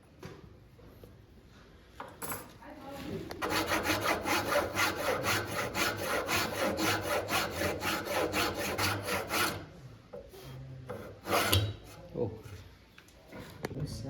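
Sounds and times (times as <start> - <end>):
hand saw cutting wood: 3.4 - 12.1.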